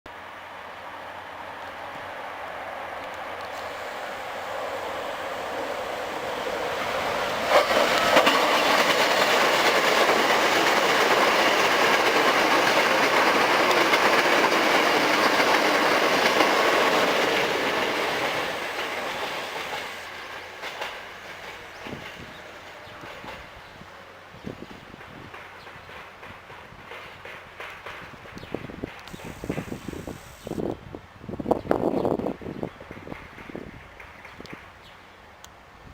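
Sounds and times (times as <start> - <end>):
train wheel and rail noise: 0.1 - 35.9
train braking: 3.4 - 30.7.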